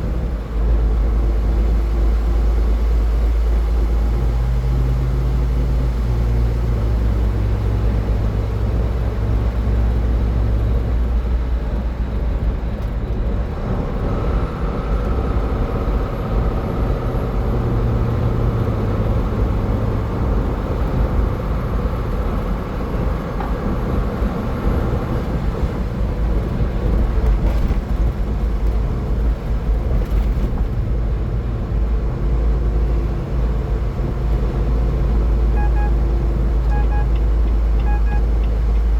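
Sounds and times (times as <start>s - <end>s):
road and tyre noise: 0.0s - 38.9s.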